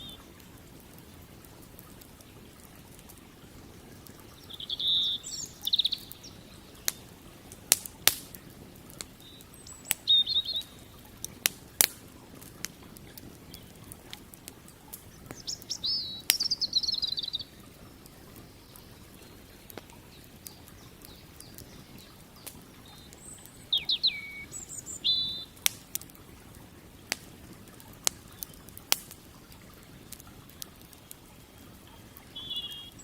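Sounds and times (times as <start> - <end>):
songbird chirping: 0.0 - 0.4, 3.4 - 8.1, 9.1 - 11.3, 15.0 - 25.7, 28.1 - 33.0
campfire crackling and popping: 0.0 - 33.0.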